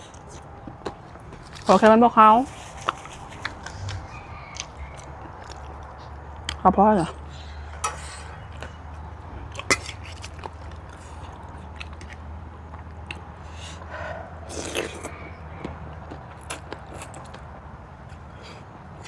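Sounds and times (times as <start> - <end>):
close chewing with wet smacks: 0.0 - 6.6, 9.0 - 13.3, 14.5 - 18.2
steady low hum: 0.0 - 19.0.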